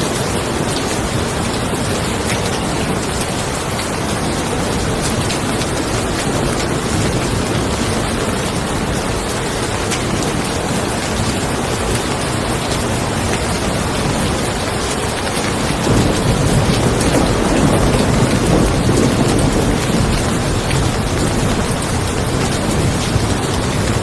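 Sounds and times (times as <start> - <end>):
steady rain falling: 0.0 - 24.0
low roll of thunder: 15.6 - 24.0.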